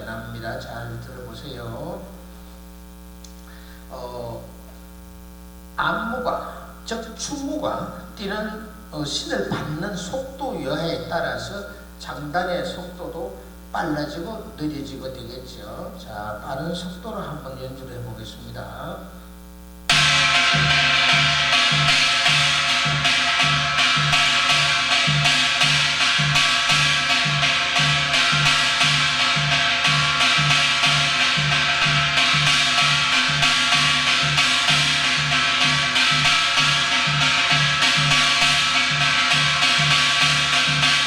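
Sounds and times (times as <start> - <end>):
metallic hand gong ringing: 19.9 - 41.0.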